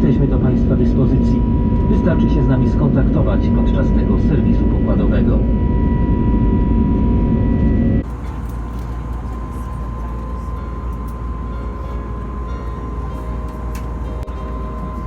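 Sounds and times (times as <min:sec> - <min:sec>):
airliner cabin rumble: 0:00.0 - 0:15.0
faint steady whine: 0:00.1 - 0:15.0.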